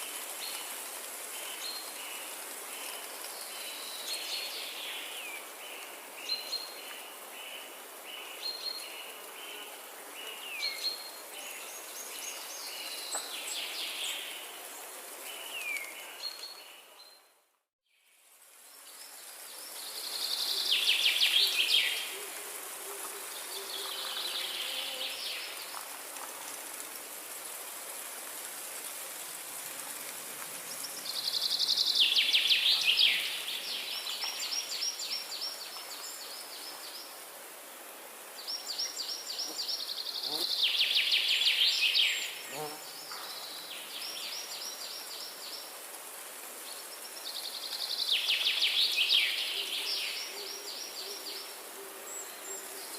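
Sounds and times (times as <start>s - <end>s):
steady high hiss: 18.1s - 52.9s.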